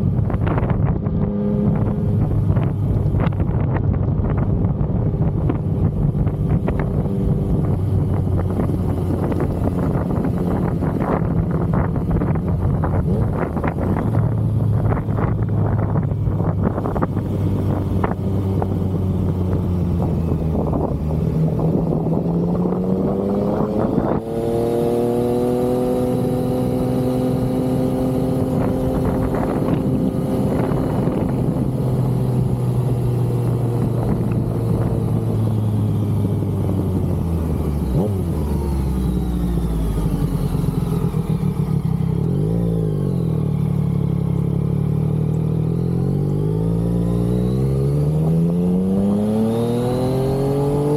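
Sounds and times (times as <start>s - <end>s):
wind rush: 0.0s - 38.8s
motorcycle engine revving: 0.0s - 50.9s.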